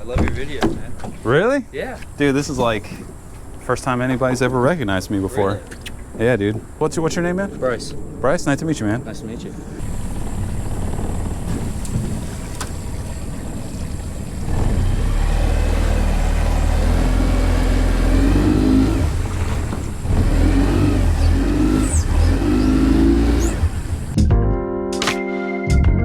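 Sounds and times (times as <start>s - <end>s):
outboard motor running: 9.8s - 24.2s.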